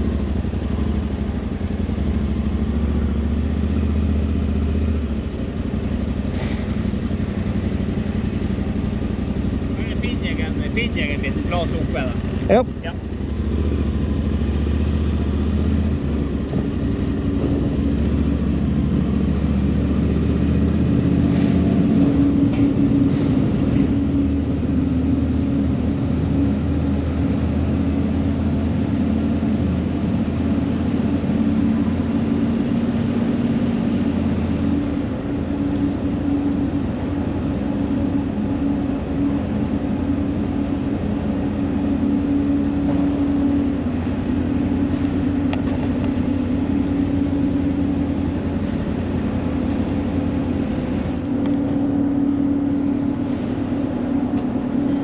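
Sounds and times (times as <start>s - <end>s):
engine drone: 0.0s - 55.0s.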